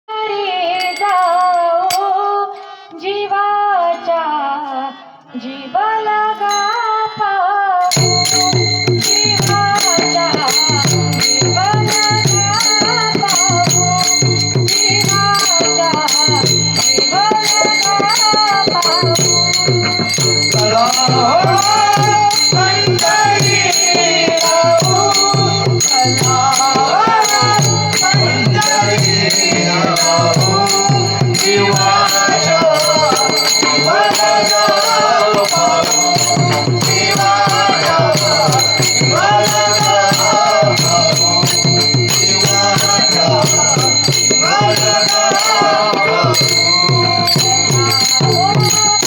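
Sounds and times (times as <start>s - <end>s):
girl singing: 0.1s - 8.6s
girl singing devotional song: 0.1s - 41.4s
jingling rattling percussion: 0.5s - 2.6s, 6.4s - 49.0s
drum beat: 7.9s - 49.0s.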